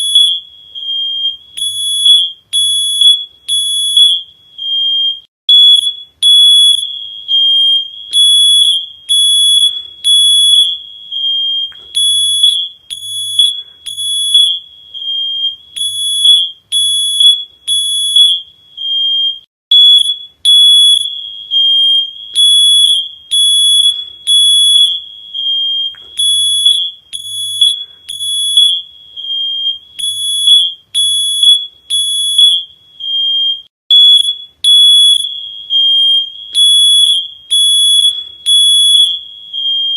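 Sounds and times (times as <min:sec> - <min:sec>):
electronic alarm beeping: 0:00.0 - 0:39.9.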